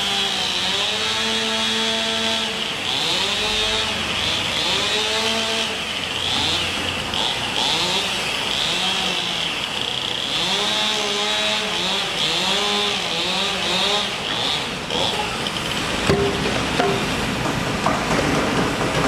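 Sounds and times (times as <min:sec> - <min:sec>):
power tool motor whine: 0:00.0 - 0:17.2
traffic hum: 0:13.5 - 0:19.0
sharp knock: 0:16.1 - 0:17.2.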